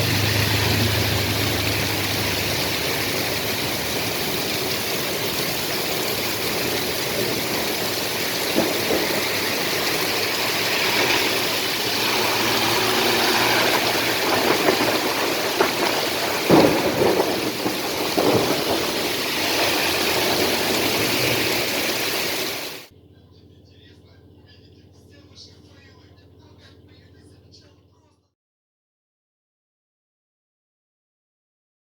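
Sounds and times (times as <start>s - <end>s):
knocks and splashes: 0.0s - 22.6s
heavy rain pouring: 0.0s - 22.9s.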